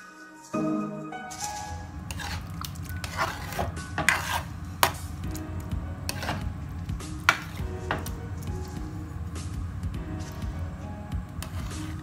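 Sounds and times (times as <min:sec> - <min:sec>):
metal spoon stirring stew: 0:02.0 - 0:08.8, 0:11.4 - 0:12.0
spoon scraping and clinking pan: 0:02.1 - 0:05.2, 0:06.1 - 0:06.5, 0:07.2 - 0:08.1, 0:11.4 - 0:12.0.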